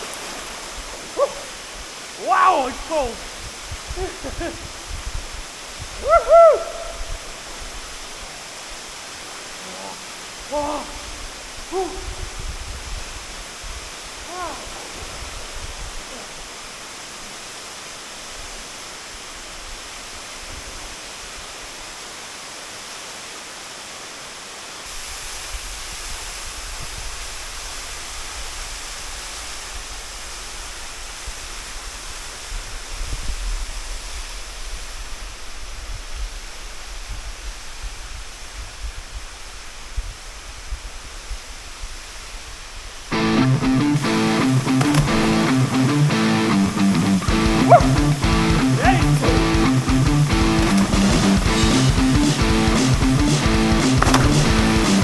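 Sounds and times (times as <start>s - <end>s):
waterfall rushing: 0.0s - 32.9s, 42.3s - 55.0s
guitar music: 43.1s - 55.0s.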